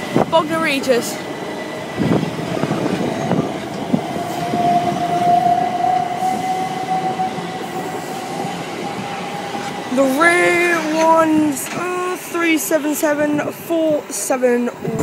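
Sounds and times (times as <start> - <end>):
train running gear rumble: 0.0 - 15.0
train motor whine: 1.4 - 12.5
wheels clacking over rail joints: 6.9 - 13.2.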